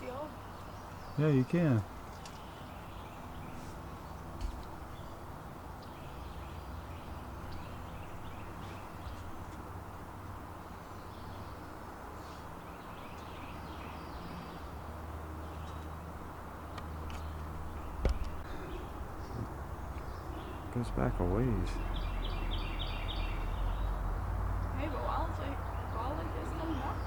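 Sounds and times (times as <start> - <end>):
steady low rumble: 17.4 - 27.0.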